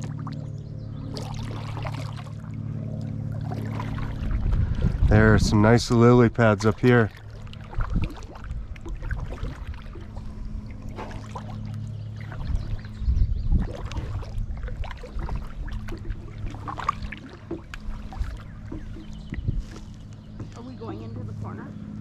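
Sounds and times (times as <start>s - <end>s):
paddle splashing water: 0.0s - 21.7s
low hum: 0.0s - 22.0s
water dripping off paddle: 6.6s - 12.9s, 13.6s - 20.7s.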